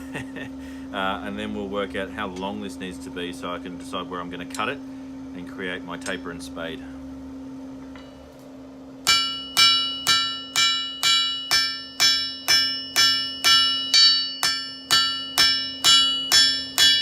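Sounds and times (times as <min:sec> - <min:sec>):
hammer striking steel on anvil: 0:09.0 - 0:17.0
bell-like anvil ring: 0:09.1 - 0:17.0.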